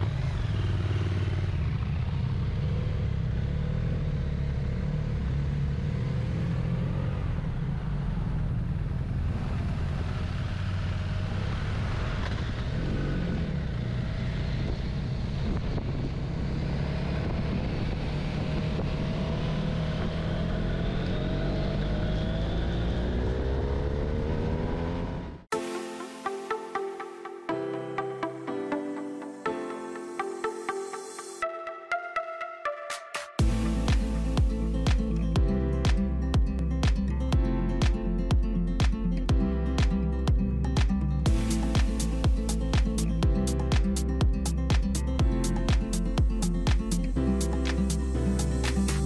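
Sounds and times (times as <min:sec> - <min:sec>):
motorcycle engine rumble: 0:00.0 - 0:25.5, 0:33.4 - 0:49.0
road noise: 0:00.0 - 0:49.0
wind noise: 0:14.5 - 0:20.6.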